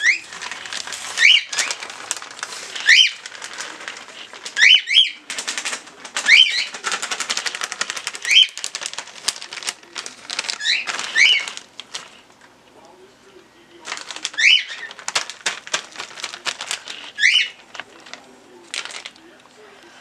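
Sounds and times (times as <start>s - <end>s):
rapid clatter of clicks: 0.3s - 12.2s, 13.8s - 19.5s.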